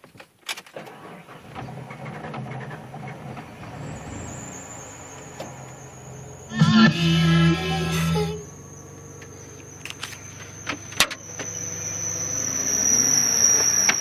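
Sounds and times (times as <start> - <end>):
truck engine cranking: 0.6 - 14.0
faint high whine: 4.4 - 14.0
loud pitched sound: 6.4 - 14.0.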